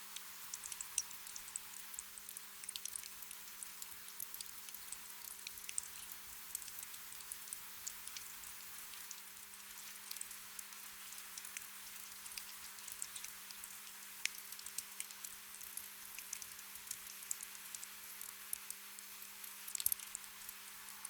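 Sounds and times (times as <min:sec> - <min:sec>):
gentle rain hiss: 0:00.0 - 0:21.0
raindrops pattering: 0:04.2 - 0:21.0.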